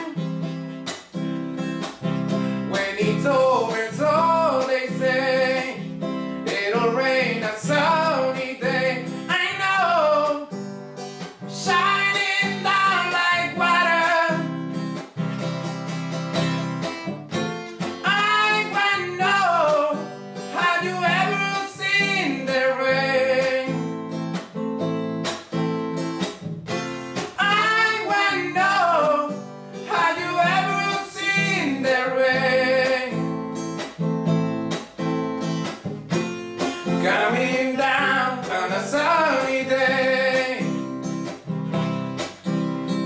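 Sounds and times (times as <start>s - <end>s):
person singing: 0.0s - 0.6s, 2.6s - 10.5s, 11.5s - 14.5s, 18.0s - 23.9s, 27.2s - 33.4s, 36.9s - 40.9s
acoustic guitar strumming: 0.0s - 43.0s.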